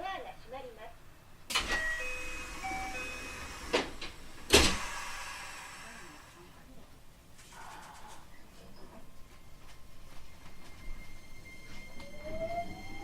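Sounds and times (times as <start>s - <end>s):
door chime tones: 1.5s - 4.4s, 10.4s - 13.0s
train doors thudding shut: 1.5s - 5.4s.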